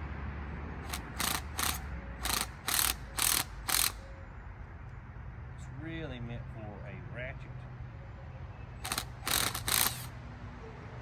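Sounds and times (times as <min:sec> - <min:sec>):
socket ratchet clicking: 0:00.9 - 0:04.0, 0:08.8 - 0:10.1.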